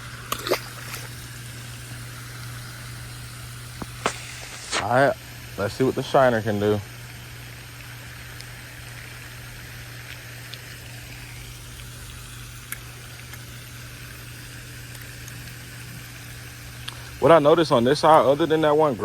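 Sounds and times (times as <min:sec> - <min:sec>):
background hiss: 0:00.0 - 0:08.7
steady low hum: 0:00.0 - 0:19.0.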